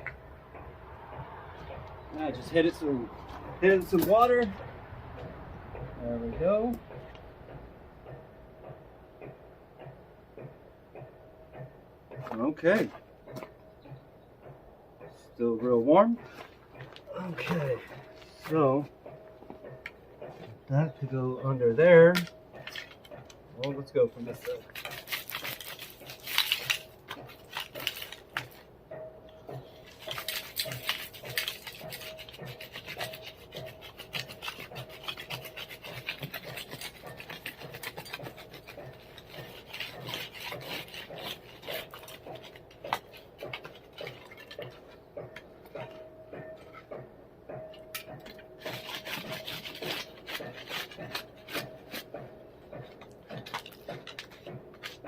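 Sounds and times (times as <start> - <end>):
digging in gravelly dirt: 2.1 - 4.7, 15.2 - 18.9, 19.7 - 28.7, 29.5 - 47.0, 47.6 - 55.0.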